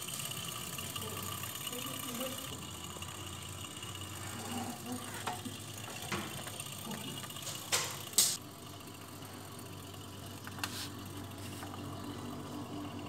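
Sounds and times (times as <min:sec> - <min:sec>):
machine clicks and rattles: 0:00.0 - 0:13.0
overlock sewing machine humming: 0:00.0 - 0:13.0.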